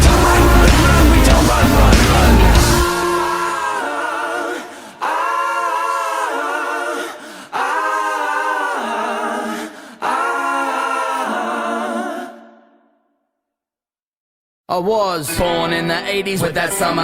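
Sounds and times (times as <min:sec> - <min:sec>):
voices singing held chords: 0:00.0 - 0:12.9.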